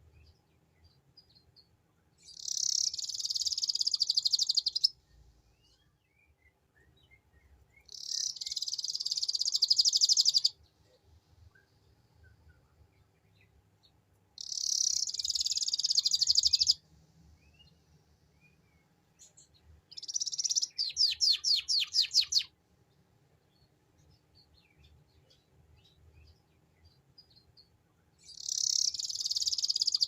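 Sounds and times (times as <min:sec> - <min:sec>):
faint bird chirps: 0:00.0 - 0:30.0
canary trilling: 0:02.3 - 0:04.9, 0:07.9 - 0:10.5, 0:14.4 - 0:16.8, 0:19.9 - 0:22.5, 0:28.3 - 0:30.0.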